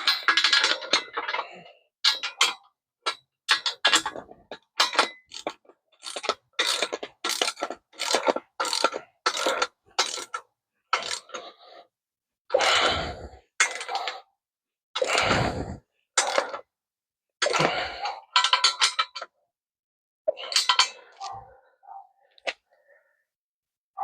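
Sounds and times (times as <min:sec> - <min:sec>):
ratchet wrench clicking: 0:06.6 - 0:10.4.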